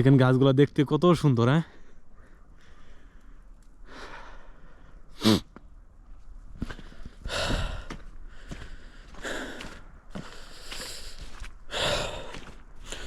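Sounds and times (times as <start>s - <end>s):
man breathing and sniffing: 2.6s - 5.6s, 6.6s - 13.0s
footsteps in snow: 5.5s - 13.0s.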